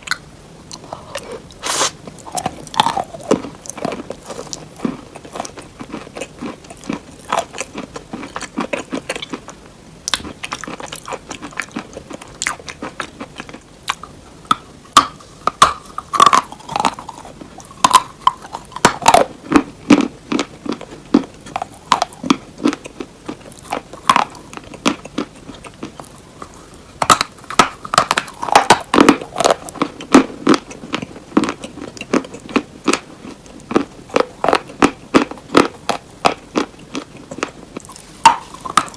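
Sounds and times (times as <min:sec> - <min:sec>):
hard cheese crunching in mouth: 0:00.0 - 0:38.9.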